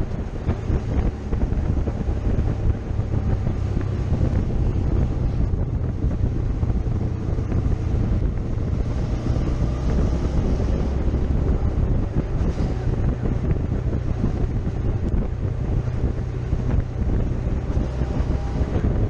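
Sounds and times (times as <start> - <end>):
motorcycle engine running: 0.0 - 19.0
wind buffeting on microphone: 0.0 - 19.0.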